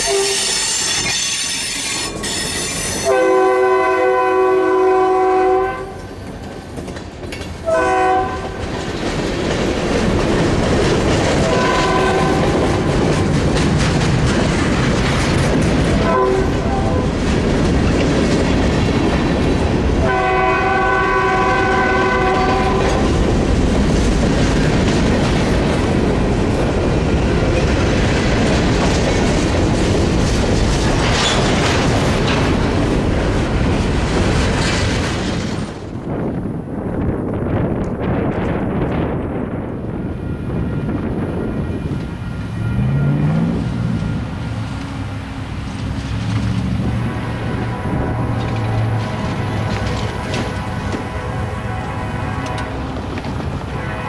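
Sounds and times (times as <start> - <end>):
train air horn blasts: 0.0 - 6.2, 7.6 - 8.7, 11.4 - 13.0, 16.0 - 17.3, 20.0 - 23.2, 46.8 - 54.0
train cars rumbling on rails: 0.0 - 54.0.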